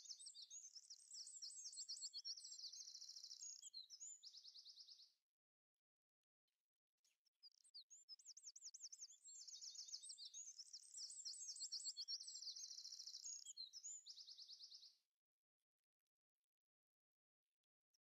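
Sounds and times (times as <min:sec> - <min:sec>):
songbird trills and chirps: 0:00.0 - 0:05.1, 0:07.4 - 0:15.0.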